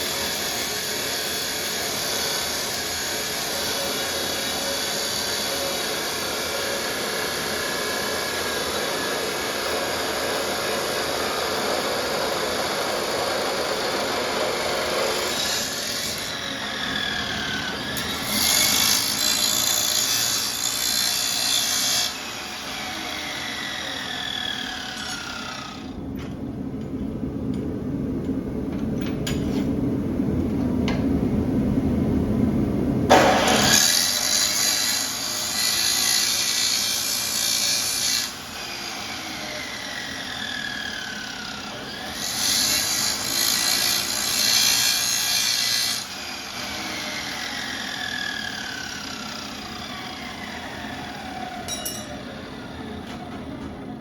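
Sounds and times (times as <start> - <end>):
chop saw cutting steel: 0.0 - 26.0, 33.1 - 52.8
saw blade spinning down whine: 0.0 - 26.1, 38.2 - 44.2, 45.9 - 53.1.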